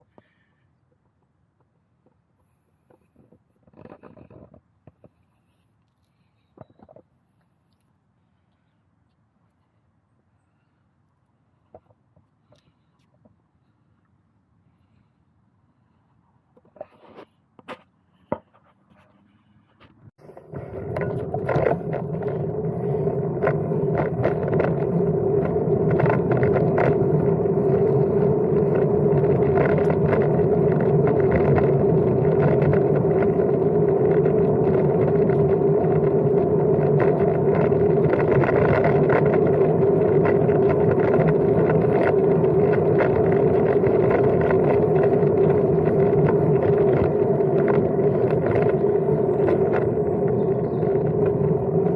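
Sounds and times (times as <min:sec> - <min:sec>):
rumble of bike tyres and wind: 0:19.2 - 0:51.9
bike rattles and clicks: 0:19.8 - 0:51.9.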